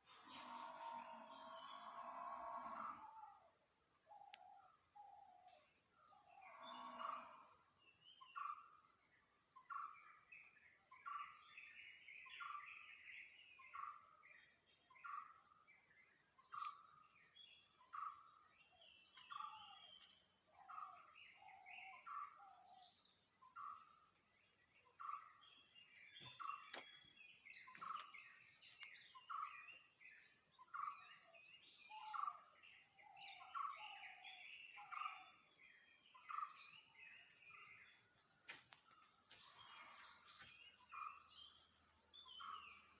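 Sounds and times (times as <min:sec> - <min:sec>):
birds chirping: 0:24.5 - 0:42.9.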